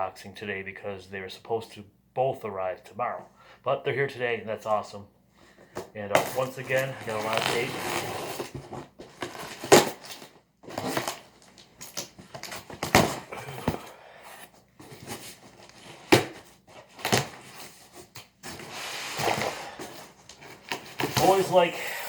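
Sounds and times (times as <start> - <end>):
cardboard and paper rustling: 5.7 - 21.8
packing tape tearing: 6.3 - 13.4.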